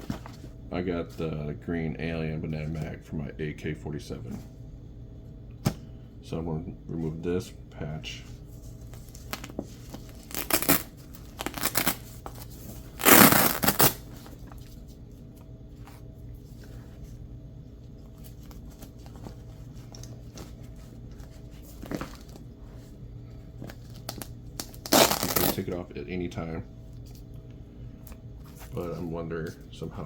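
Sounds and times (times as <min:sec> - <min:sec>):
velcro ripping: 0:10.1 - 0:12.4, 0:13.0 - 0:14.1, 0:24.0 - 0:25.7.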